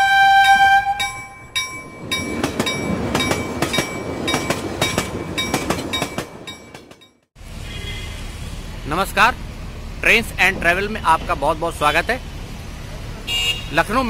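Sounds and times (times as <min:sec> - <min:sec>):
train wheels clattering over rail joints: 0:01.0 - 0:07.2.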